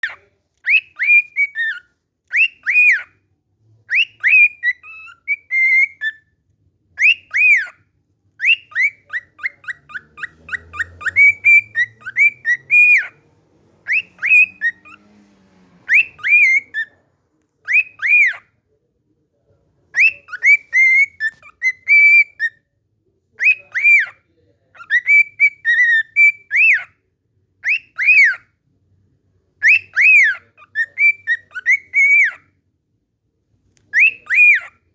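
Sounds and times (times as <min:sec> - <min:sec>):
cockatiel whistling: 0:00.0 - 0:03.2, 0:03.9 - 0:06.3, 0:07.0 - 0:07.8, 0:08.4 - 0:15.1, 0:15.8 - 0:17.0, 0:17.7 - 0:18.5, 0:20.0 - 0:22.6, 0:23.4 - 0:24.2, 0:24.8 - 0:26.9, 0:27.6 - 0:28.4, 0:29.6 - 0:32.4, 0:33.9 - 0:34.8.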